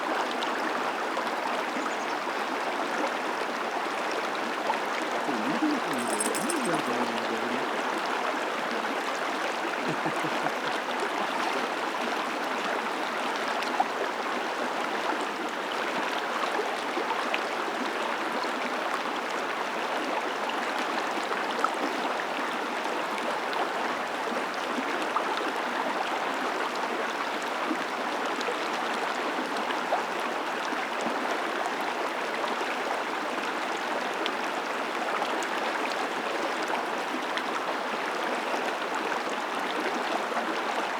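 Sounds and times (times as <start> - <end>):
creek running: 0.0 - 20.2.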